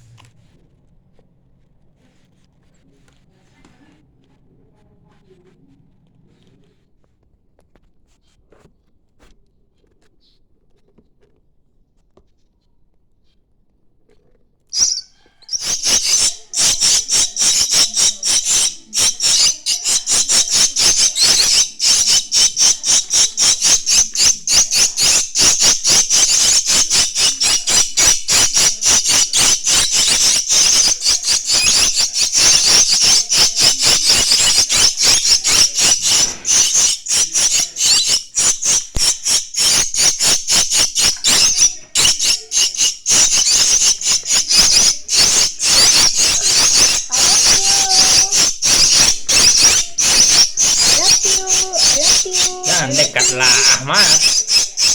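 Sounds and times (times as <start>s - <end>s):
bird chicks chirping shrilly: 14.8s - 54.9s.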